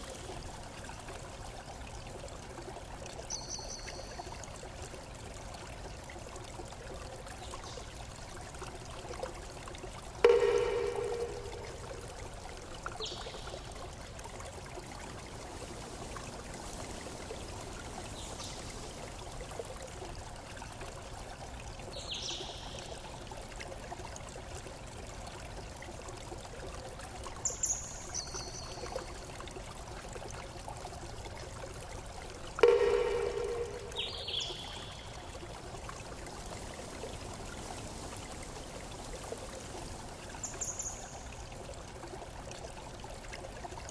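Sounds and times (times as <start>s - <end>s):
running water: 0.0s - 43.9s
high chirps: 10.2s - 12.1s, 32.6s - 35.1s
ringing bell-like tone: 10.2s - 12.2s, 32.6s - 35.1s.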